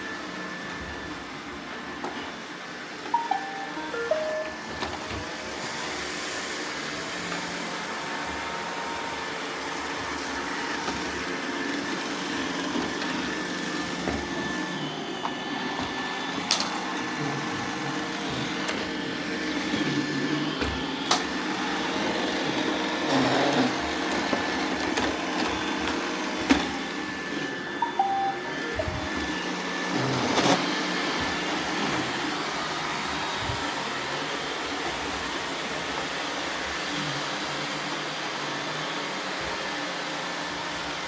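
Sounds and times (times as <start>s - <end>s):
faint high tone: 3.1s - 5.7s, 27.8s - 29.4s
robot vacuums whirring: 4.6s - 41.0s.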